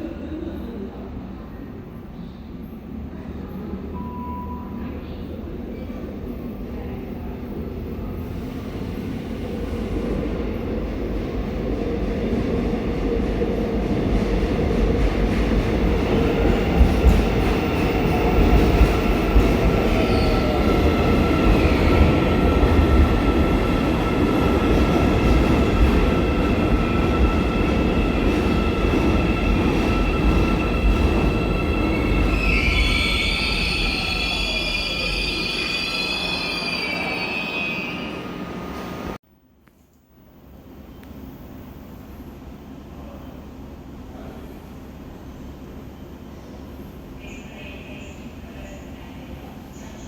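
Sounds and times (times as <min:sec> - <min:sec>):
electric train rumbling: 0:00.0 - 0:39.2.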